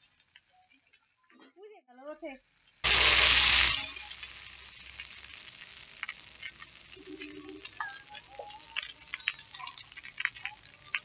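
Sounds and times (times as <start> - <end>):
noodles sizzling in a wok: 0.0 - 1.2, 2.4 - 11.0
oil ticking and spattering: 2.6 - 11.0.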